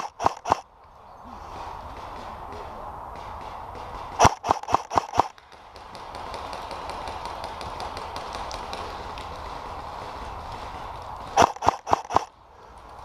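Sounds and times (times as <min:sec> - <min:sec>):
airsoft gun shots: 0:00.0 - 0:00.6, 0:03.2 - 0:08.2, 0:11.4 - 0:12.3
faint distant airsoft shots: 0:00.0 - 0:00.7, 0:01.6 - 0:12.4.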